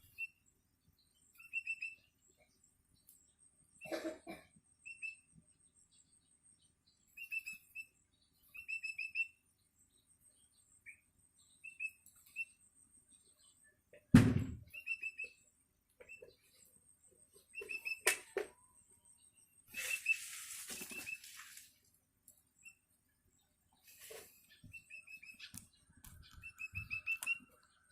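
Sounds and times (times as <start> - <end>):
bird chick begging chirps: 0.0 - 0.4, 1.3 - 2.4, 4.8 - 5.3, 7.1 - 9.4, 10.8 - 13.6, 14.7 - 16.7, 17.4 - 21.4, 24.0 - 27.9
loud thump: 14.1 - 14.7.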